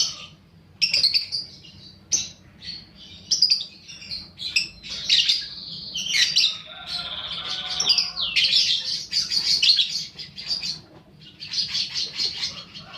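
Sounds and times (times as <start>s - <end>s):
lovebird chirping: 0.0s - 12.9s.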